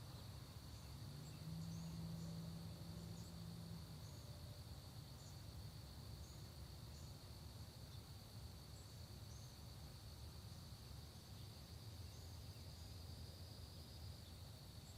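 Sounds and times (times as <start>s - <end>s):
crickets trilling: 0.0s - 14.9s.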